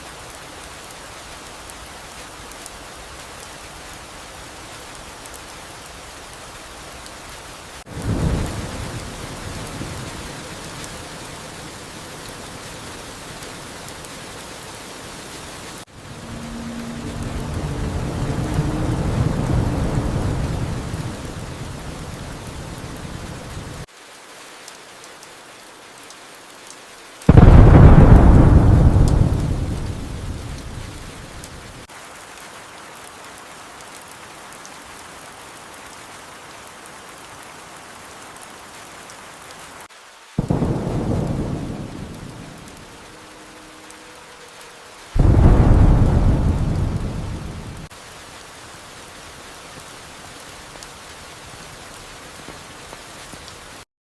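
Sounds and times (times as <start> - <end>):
steady rain: 0.0 - 53.9
thunder claps: 16.0 - 23.8, 27.3 - 31.8, 40.4 - 43.2, 45.2 - 47.9.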